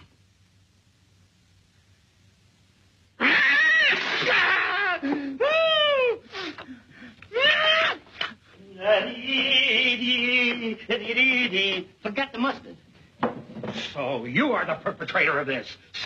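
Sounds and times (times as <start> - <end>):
cat yowling and meowing: 3.2 - 4.8.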